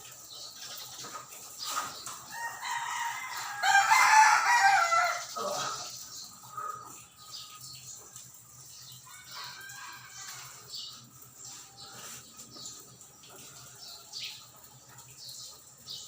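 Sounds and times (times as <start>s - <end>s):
rooster crowing: 2.3s - 5.8s, 9.1s - 10.7s.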